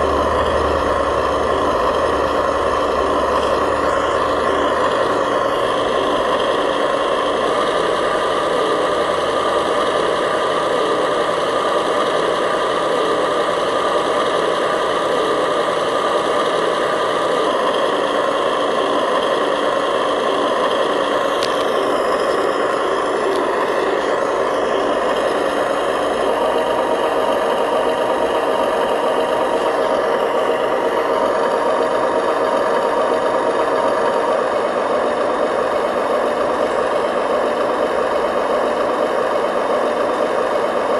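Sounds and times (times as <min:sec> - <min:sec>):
toy truck motor whine: 0:00.0 - 0:40.9.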